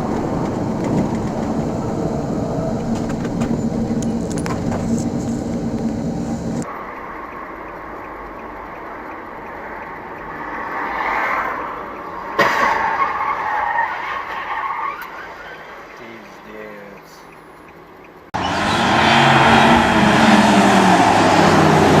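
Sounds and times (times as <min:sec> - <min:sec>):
noisy sliding: 0:00.0 - 0:07.0
car tyres skidding: 0:10.3 - 0:16.1, 0:18.4 - 0:22.0
car crash impact: 0:12.4 - 0:13.4.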